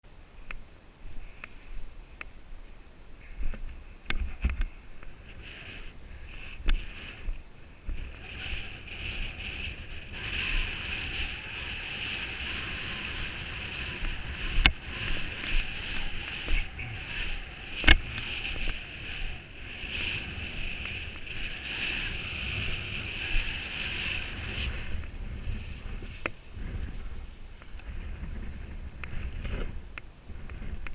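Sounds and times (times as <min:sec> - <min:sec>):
wind buffeting microphone: 0:01.0 - 0:30.9.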